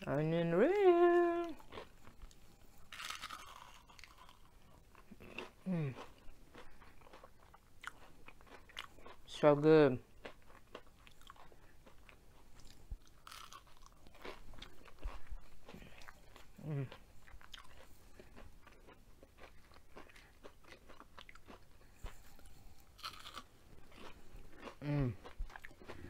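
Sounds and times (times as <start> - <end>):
chewing crunchy food: 0.6 - 26.0
person humming mm: 5.6 - 6.0, 16.6 - 17.0, 24.8 - 25.2.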